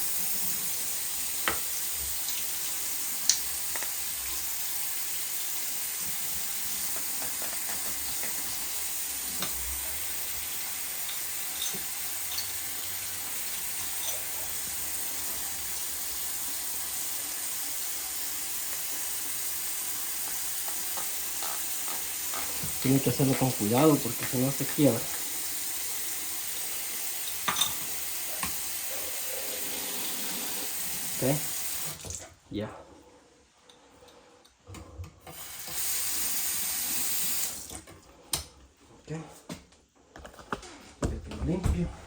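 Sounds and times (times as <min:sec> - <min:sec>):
tap water running into sink: 0:00.0 - 0:32.3, 0:35.2 - 0:37.9
brush clinking against glass: 0:11.0 - 0:12.6, 0:13.8 - 0:14.5.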